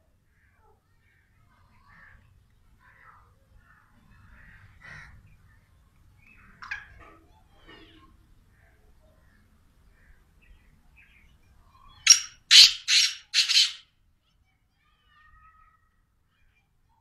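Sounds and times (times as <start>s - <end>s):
faint harsh bird calls: 0.3s - 14.0s.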